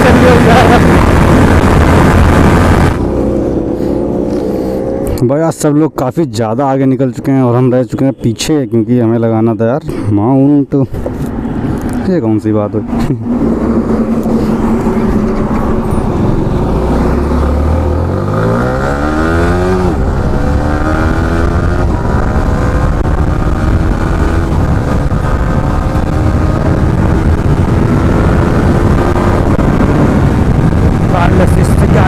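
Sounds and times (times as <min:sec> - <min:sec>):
motorcycle engine accelerating: 0:00.0 - 0:05.2, 0:12.7 - 0:32.0
low wind rumble: 0:00.0 - 0:32.0.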